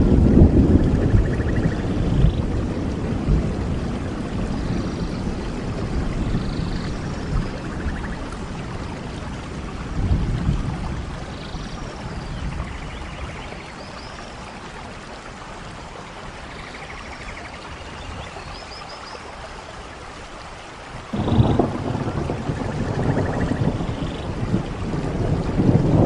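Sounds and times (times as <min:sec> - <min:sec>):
low rumble of thunder: 0:00.0 - 0:15.0, 0:21.0 - 0:26.0
steady rain falling: 0:00.0 - 0:26.0.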